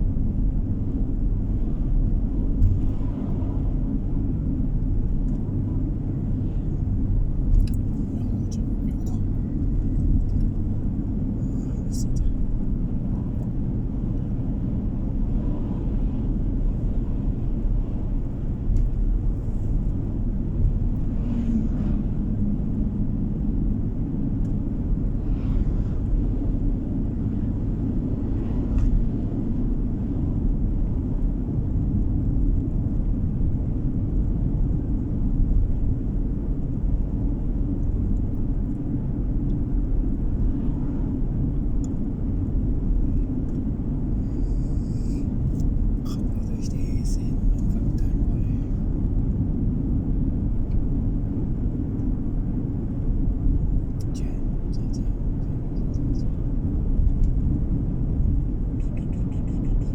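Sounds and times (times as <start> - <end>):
car driving on road: 0.0 - 59.9.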